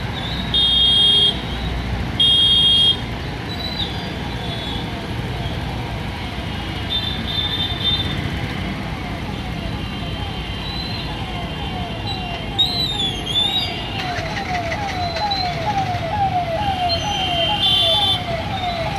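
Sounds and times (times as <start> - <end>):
street traffic noise: 0.0 - 18.9
vehicle horn honks: 17.1 - 18.2.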